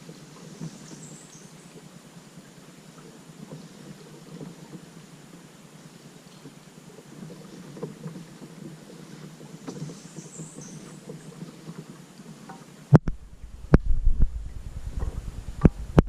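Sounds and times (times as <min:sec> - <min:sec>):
water lapping: 0:00.0 - 0:16.0
small splashes and knocks: 0:06.3 - 0:13.2.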